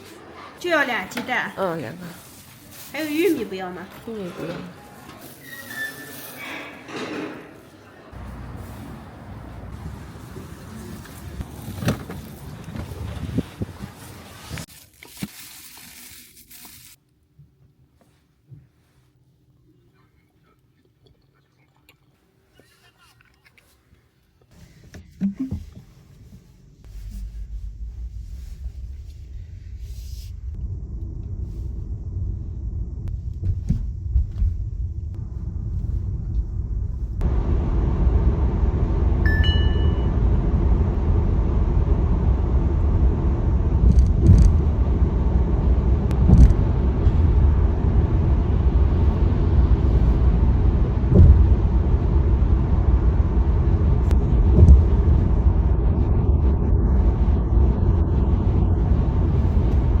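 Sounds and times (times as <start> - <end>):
road and tyre rumble: 8.1 - 14.7, 26.6 - 60.0
short high beep: 39.3 - 40.2
soft thumps: 51.1 - 51.7.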